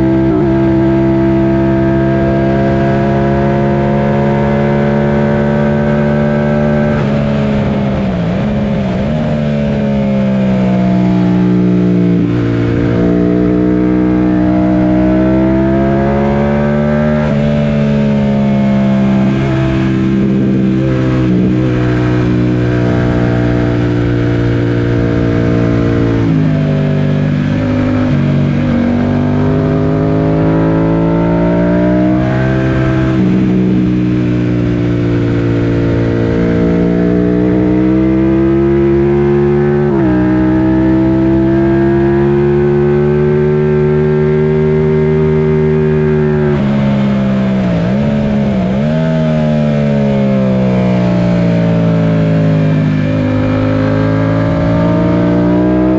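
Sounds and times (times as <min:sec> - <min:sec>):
motorcycle engine under hard load: 0:00.0 - 0:55.9.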